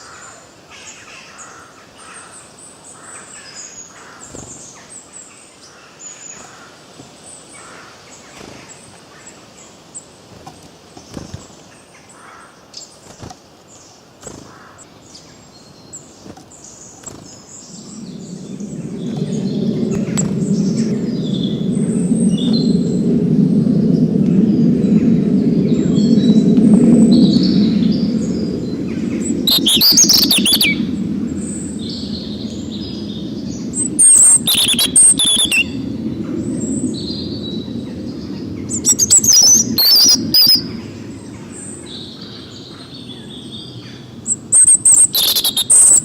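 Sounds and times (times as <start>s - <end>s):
loud low rushing noise: 17.6s - 44.3s
birds chirping and singing: 17.7s - 35.8s, 38.2s - 40.7s, 45.0s - 46.0s.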